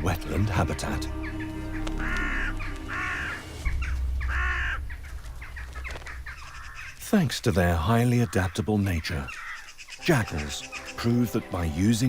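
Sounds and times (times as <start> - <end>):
crow cawing: 1.1 - 7.0, 9.2 - 11.0.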